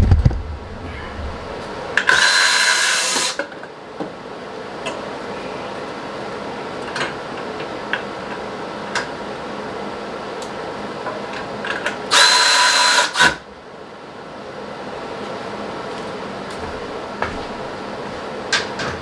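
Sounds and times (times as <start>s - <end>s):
electric ratchet whirring: 2.1s - 3.4s, 12.1s - 13.4s.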